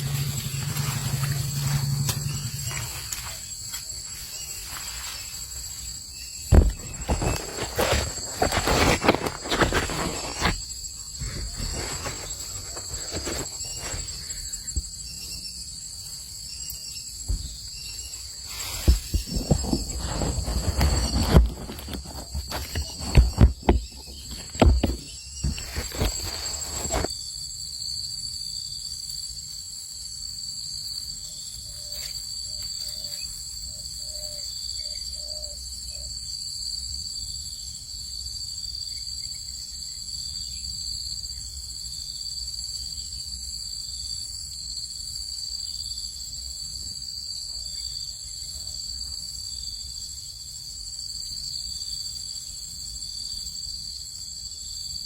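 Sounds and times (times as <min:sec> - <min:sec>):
insect chorus trilling: 0:00.0 - 0:55.0
sharp knocks and rustles: 0:06.4 - 0:14.9, 0:17.3 - 0:17.9, 0:18.5 - 0:27.1.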